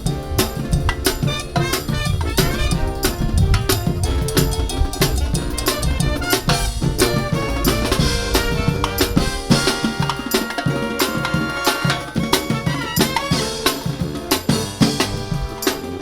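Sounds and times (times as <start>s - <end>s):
brass band playing: 0.0s - 16.0s
drum and percussion beat: 0.0s - 16.0s.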